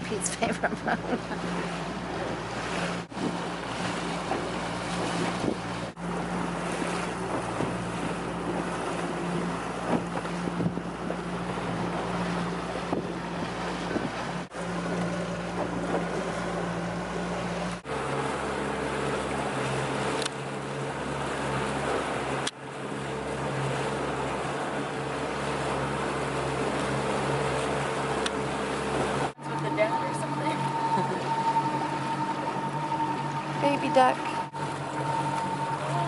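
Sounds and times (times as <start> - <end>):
motorboat engine humming: 0.0 - 36.0
rushing water: 0.0 - 36.0
wind on microphone: 1.7 - 14.6.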